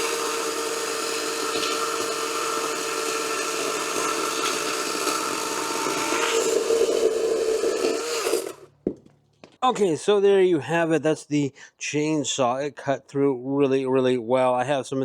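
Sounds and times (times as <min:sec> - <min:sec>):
chainsaw cutting logs: 0:00.0 - 0:08.8.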